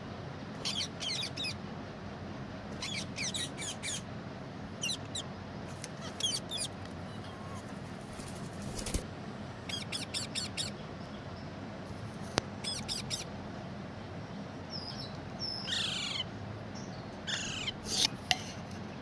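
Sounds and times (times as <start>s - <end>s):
parrot chirping and screeching: 0.6s - 1.6s, 2.8s - 4.1s, 4.8s - 5.3s, 6.0s - 9.0s, 9.7s - 10.7s, 12.6s - 13.3s, 15.5s - 16.3s, 17.3s - 18.2s.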